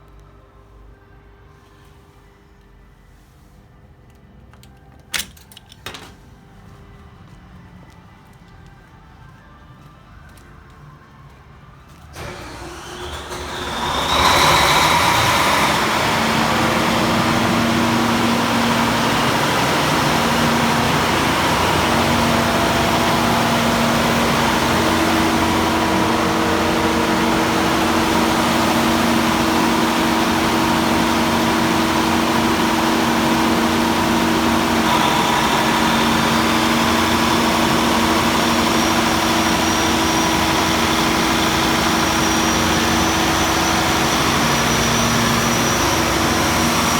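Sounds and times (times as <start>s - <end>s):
diesel generator running: 12.1s - 46.9s.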